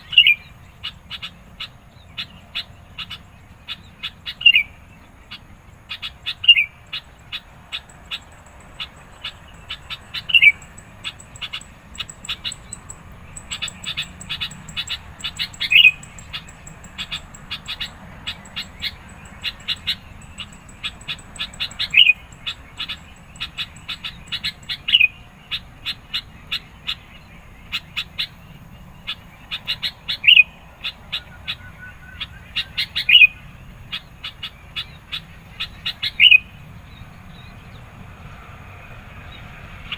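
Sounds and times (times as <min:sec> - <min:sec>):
bulbul calling: 0:00.0 - 0:38.4.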